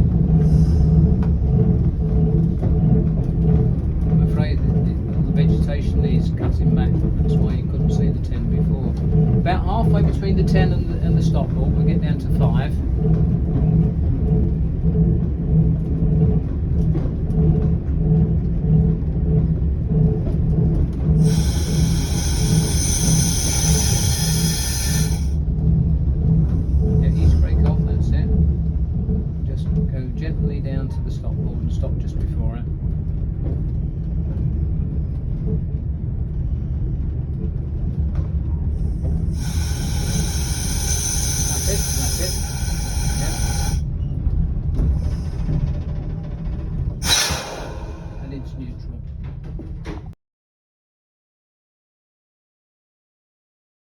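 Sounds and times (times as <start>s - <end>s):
diesel railcar rumbling: 0.0s - 50.2s
bright hiss: 21.2s - 25.3s, 39.4s - 43.8s.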